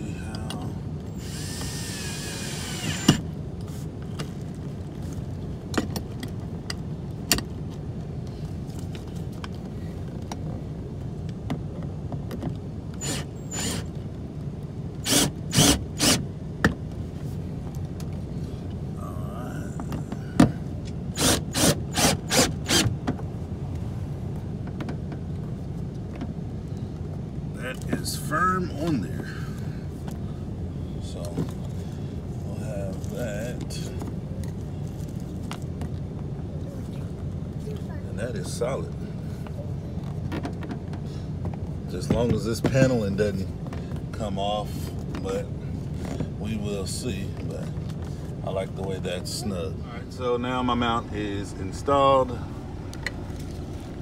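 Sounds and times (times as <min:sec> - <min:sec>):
steady low hum: 0:00.0 - 0:54.0
power drill tightening bolts: 0:01.2 - 0:03.2, 0:13.0 - 0:13.8, 0:15.0 - 0:16.2, 0:21.1 - 0:22.9.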